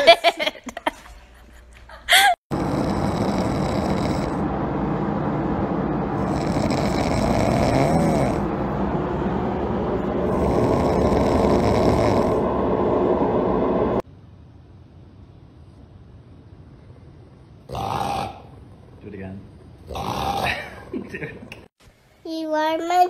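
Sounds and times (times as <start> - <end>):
dog snoring: 2.5 - 4.4, 6.2 - 8.4, 10.3 - 12.4, 17.7 - 18.6, 19.8 - 20.6.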